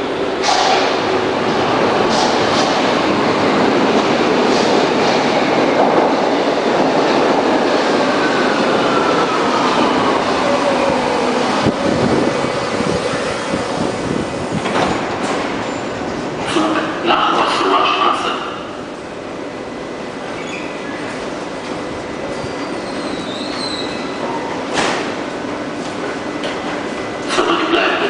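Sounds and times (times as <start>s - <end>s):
train rumbling on track: 0.0s - 28.0s.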